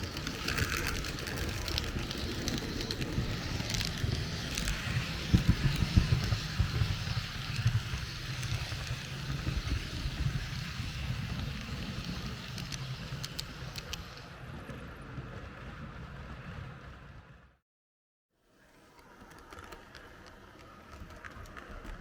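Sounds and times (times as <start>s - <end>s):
model train rumbling on track: 0.0s - 17.4s.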